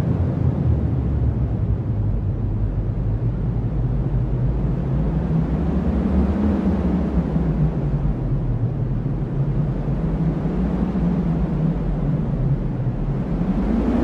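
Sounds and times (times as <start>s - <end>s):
strong wind rumbling: 0.0s - 14.0s.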